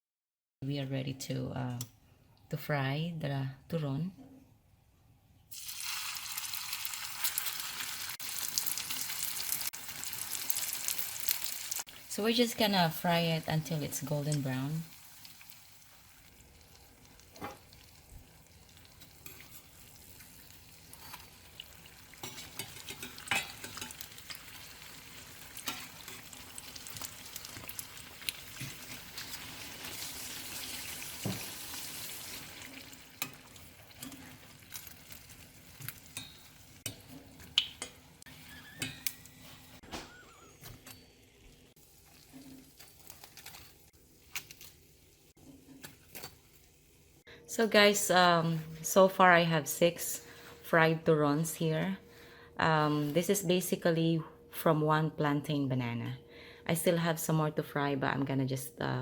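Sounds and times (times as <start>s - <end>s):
food sizzling in frying oil: 5.5s - 37.8s.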